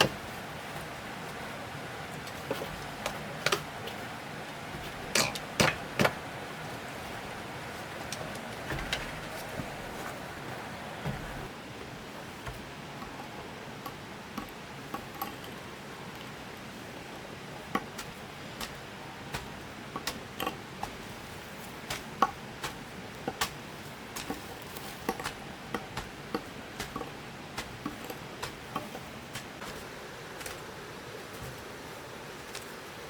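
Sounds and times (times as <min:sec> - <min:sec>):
steady hiss: 0:00.0 - 0:33.0
light knocks and clicks from hand work: 0:17.1 - 0:29.8.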